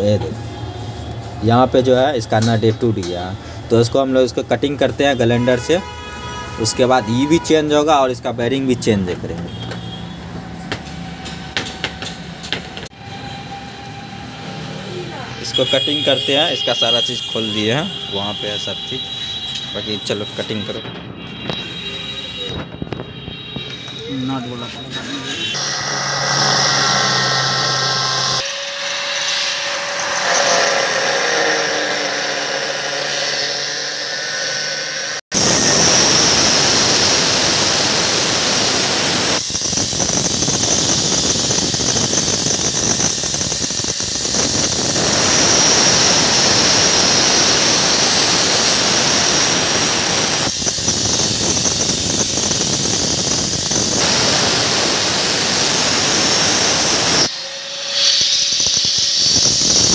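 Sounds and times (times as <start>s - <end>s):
angle grinder cutting metal: 23.6s - 59.9s.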